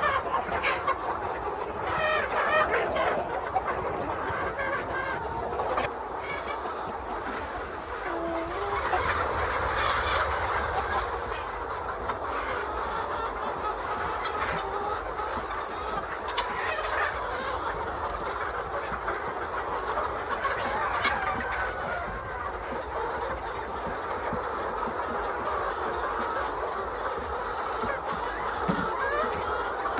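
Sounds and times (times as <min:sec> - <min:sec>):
chickens clucking: 0:00.0 - 0:29.9.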